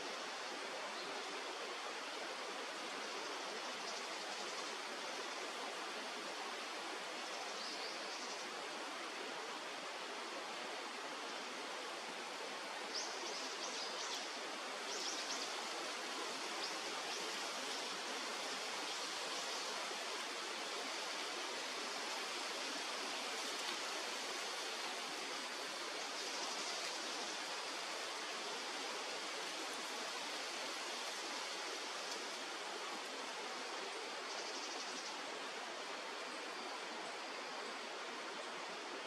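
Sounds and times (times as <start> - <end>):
flowing river water: 0.0 - 39.0.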